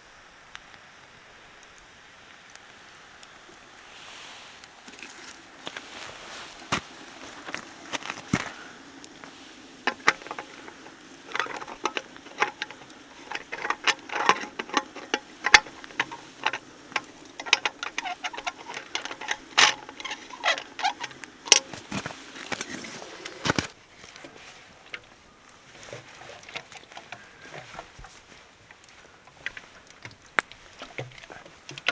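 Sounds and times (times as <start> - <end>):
small objects clicking and tapping: 4.9 - 24.3.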